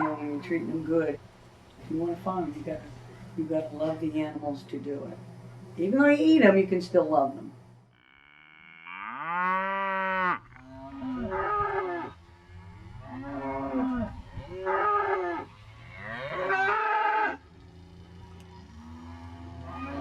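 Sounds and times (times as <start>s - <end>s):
livestock calling: 0.0s - 1.0s, 8.0s - 20.0s.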